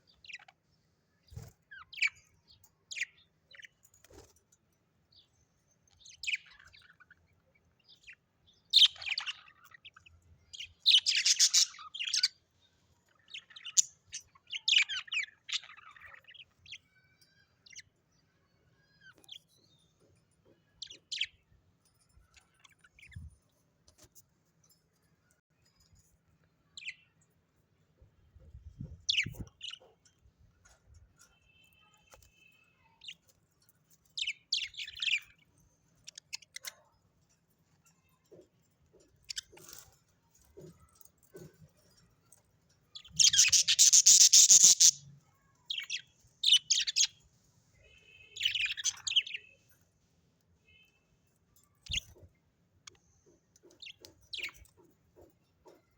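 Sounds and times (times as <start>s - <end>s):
parrots chirping and squawking: 8.0s - 12.4s, 43.0s - 47.2s.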